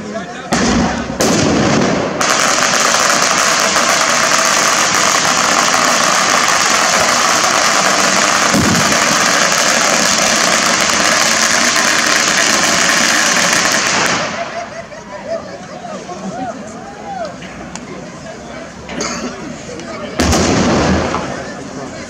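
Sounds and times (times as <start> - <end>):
flare burning with hiss: 0.9 - 14.4.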